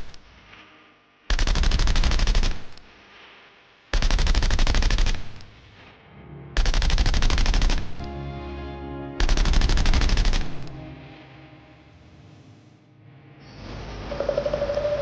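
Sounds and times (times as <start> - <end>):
woodpecker drumming: 14.0 - 15.0.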